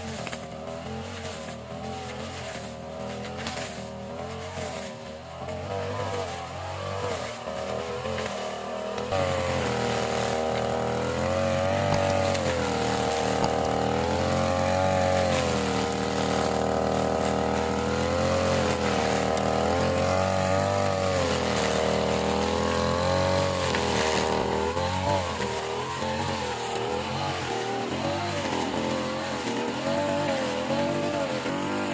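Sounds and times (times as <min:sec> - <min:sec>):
lawn mower engine running: 0:00.0 - 0:31.9.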